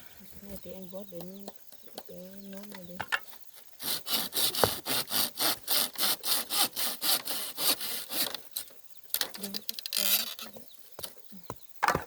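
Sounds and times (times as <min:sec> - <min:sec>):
bamboo being cut by hand: 0:03.8 - 0:08.4.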